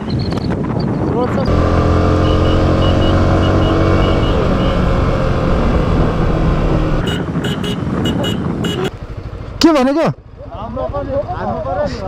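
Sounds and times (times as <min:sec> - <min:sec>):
motorcycle engine rumbling: 0:01.4 - 0:07.1
road noise: 0:01.4 - 0:08.3.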